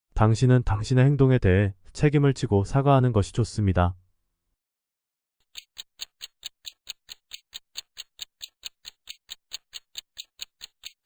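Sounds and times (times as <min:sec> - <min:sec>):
clock-like ticking: 0:05.4 - 0:11.0.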